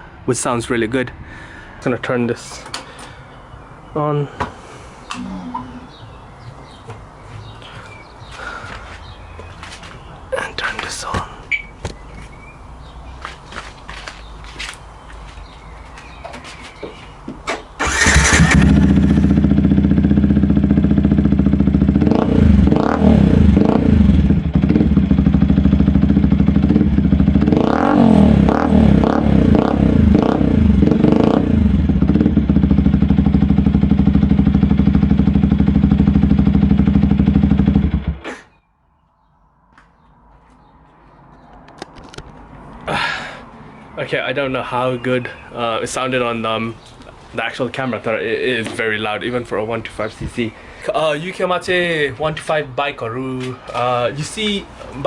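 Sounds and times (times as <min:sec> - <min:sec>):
motorcycle engine idling and revving: 0:17.8 - 0:38.3.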